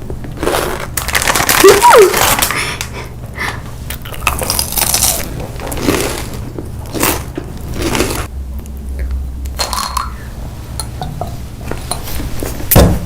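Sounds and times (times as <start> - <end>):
steady low hum: 2.3 - 13.0
crunchy chewing: 3.9 - 8.3.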